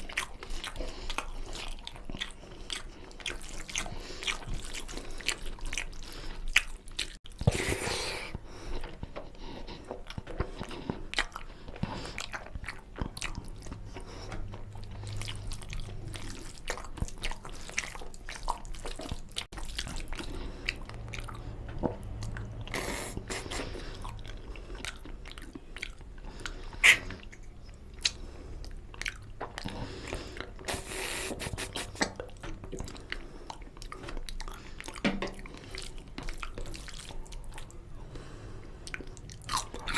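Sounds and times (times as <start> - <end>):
wet chewing and smacking: 0.0 - 39.9
mouth clicks: 26.8 - 29.6.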